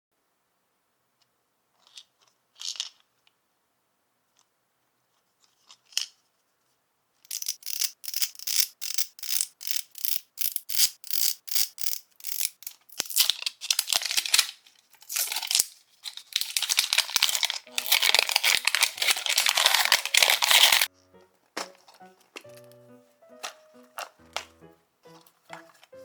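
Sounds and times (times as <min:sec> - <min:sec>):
hands scratching and tearing packaging: 0:07.3 - 0:26.0.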